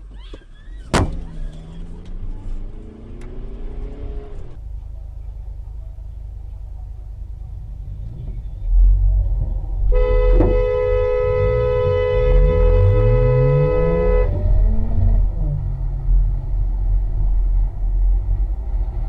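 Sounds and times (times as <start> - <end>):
low car engine: 0.0 - 19.0
road rumble: 0.0 - 19.0
car horn blaring: 9.9 - 14.6.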